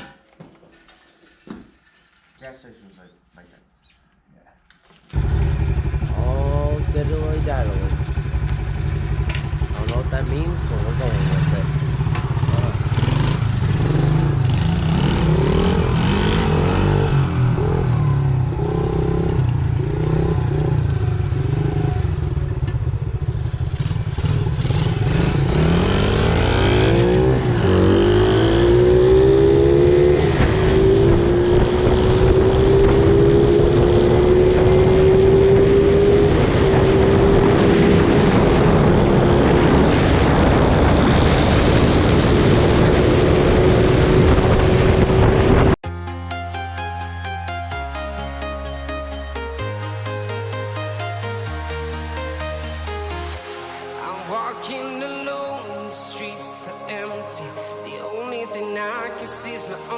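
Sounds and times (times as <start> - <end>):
wind noise on microphone: 27.4 - 45.8.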